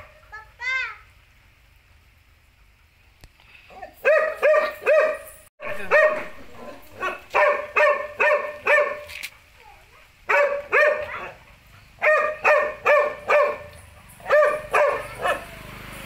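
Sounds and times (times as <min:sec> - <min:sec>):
dog barking: 0:04.0 - 0:09.1, 0:10.3 - 0:15.6.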